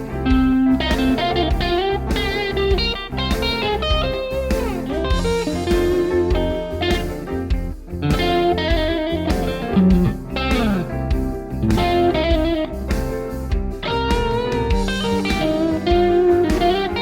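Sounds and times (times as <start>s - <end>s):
electric guitar blues licks: 0.0s - 17.0s.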